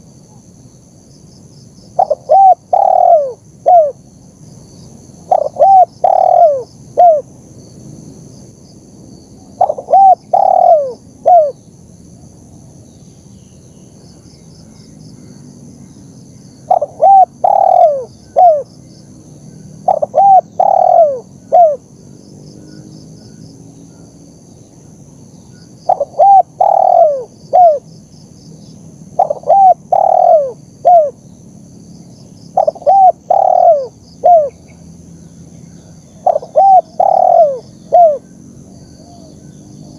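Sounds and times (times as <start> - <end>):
dove cooing: 2.0 - 4.0, 5.2 - 7.3, 9.6 - 11.6, 16.7 - 18.7, 19.8 - 21.8, 25.9 - 27.9, 29.2 - 31.2, 32.6 - 34.6, 36.2 - 38.4.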